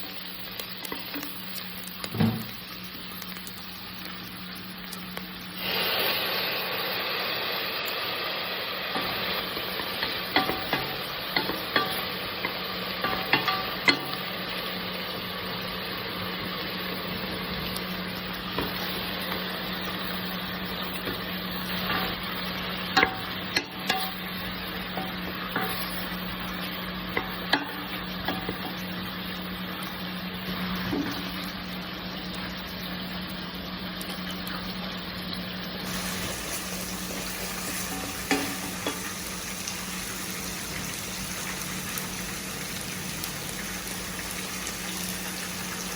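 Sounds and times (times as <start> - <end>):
food sizzling in a frying pan: 0.0 - 45.9
utensil scraping a pan: 21.0 - 28.8, 35.9 - 39.2.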